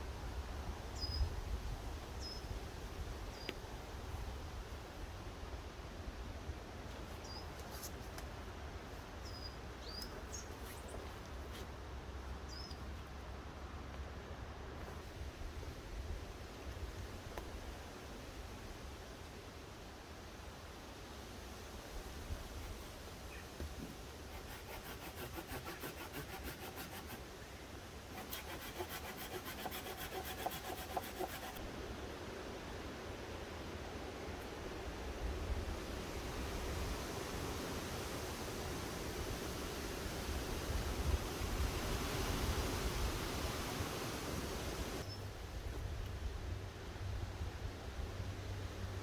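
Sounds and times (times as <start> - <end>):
small bird chirping: 1.0 - 1.3, 9.2 - 11.0, 12.5 - 12.8
hand saw cutting wood: 24.2 - 27.3, 28.1 - 31.6.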